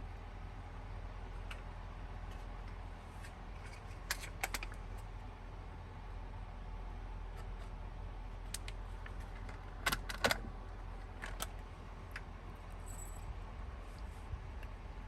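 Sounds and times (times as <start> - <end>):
steady low hum: 0.0 - 15.0
light clicks and clinks: 12.2 - 13.3.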